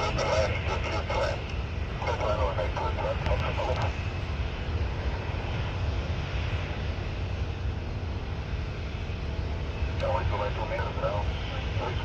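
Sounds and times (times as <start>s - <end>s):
jet engines rumbling with hiss: 0.0s - 12.0s.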